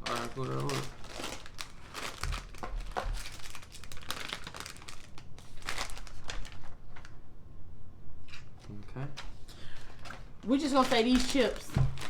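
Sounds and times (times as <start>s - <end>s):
plastic bags crinkling: 0.0s - 7.1s, 9.8s - 12.0s.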